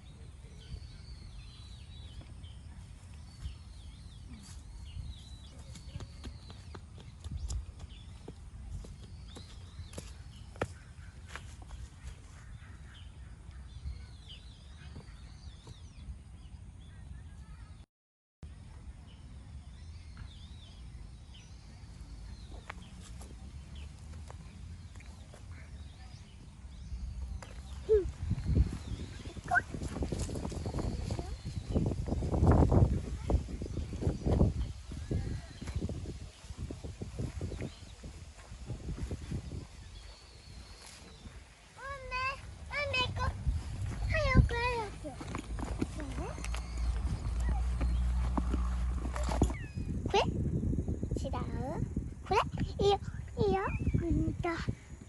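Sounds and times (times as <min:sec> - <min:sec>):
small birds twittering: 0:00.0 - 0:17.8, 0:18.7 - 0:55.0
bird chirps: 0:39.2 - 0:50.0, 0:52.8 - 0:54.1
steady low rumble: 0:42.1 - 0:53.3.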